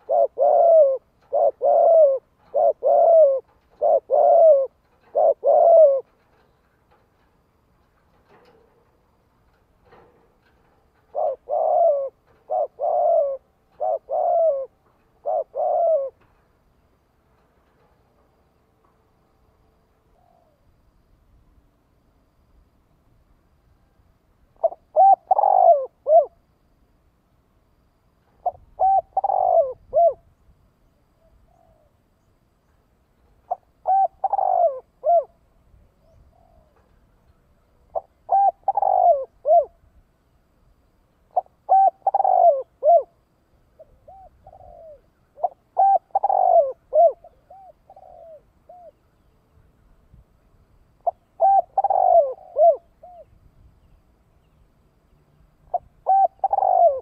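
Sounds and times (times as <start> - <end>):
dove cooing: 0.0 - 18.4, 24.6 - 26.5, 27.7 - 30.3, 31.0 - 32.3, 33.2 - 39.9, 41.3 - 49.3, 51.0 - 53.4, 55.6 - 57.0.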